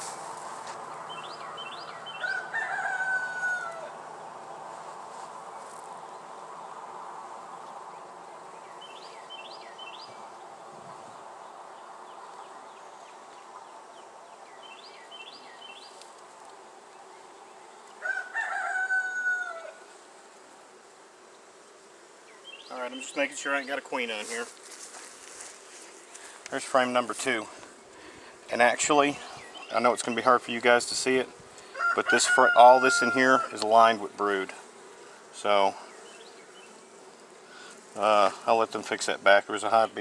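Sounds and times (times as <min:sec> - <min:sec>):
honey bees humming: 0:00.0 - 0:40.0
rooster crowing: 0:01.6 - 0:04.1, 0:18.0 - 0:19.9, 0:31.6 - 0:33.6.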